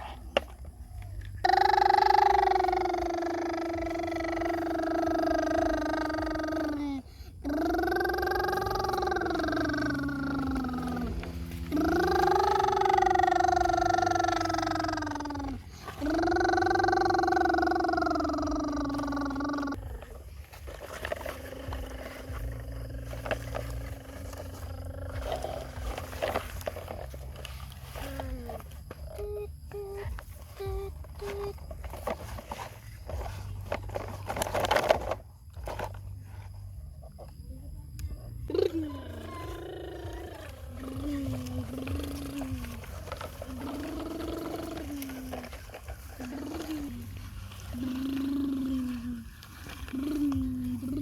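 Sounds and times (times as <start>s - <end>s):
dump truck engine rumbling: 1.2s - 32.1s.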